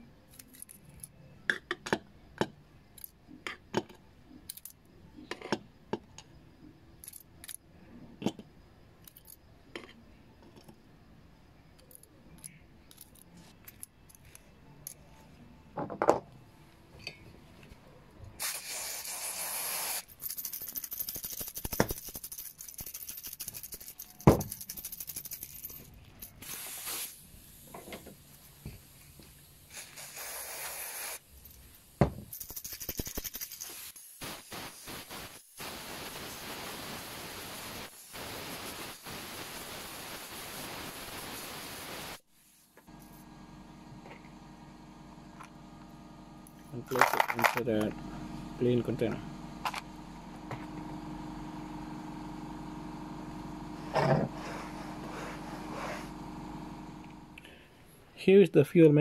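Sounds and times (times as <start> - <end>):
aerosol spray hiss: 18.4 - 20.1, 26.4 - 27.8, 28.4 - 31.3, 32.9 - 42.8, 54.4 - 56.2.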